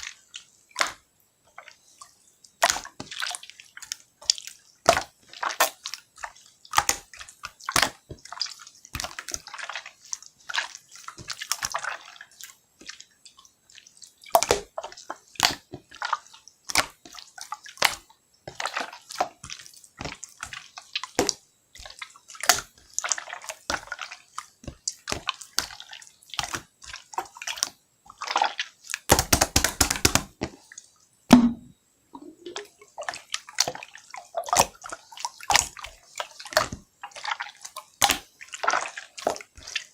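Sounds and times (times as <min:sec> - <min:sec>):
slime squished by hand: 0:24.9 - 0:30.3.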